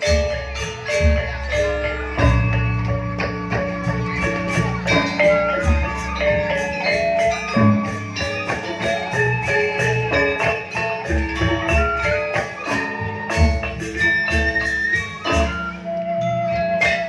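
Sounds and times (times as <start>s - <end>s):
metallophones ringing melody: 0.0s - 17.0s.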